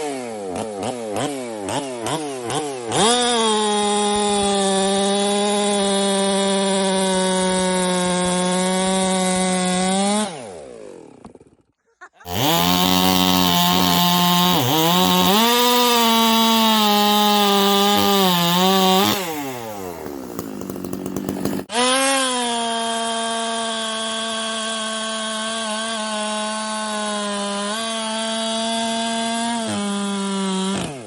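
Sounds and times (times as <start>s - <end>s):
chainsaw running at full throttle: 0.0s - 11.6s, 12.2s - 31.0s.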